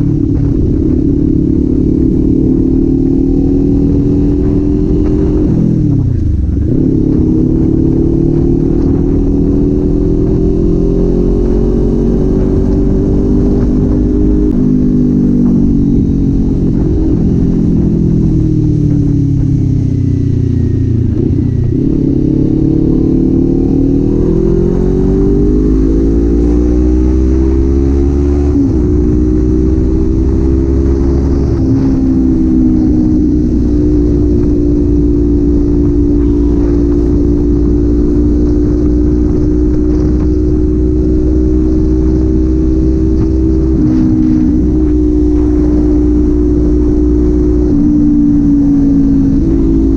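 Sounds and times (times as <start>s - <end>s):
motorcycle engine and exhaust: 0.0s - 49.9s.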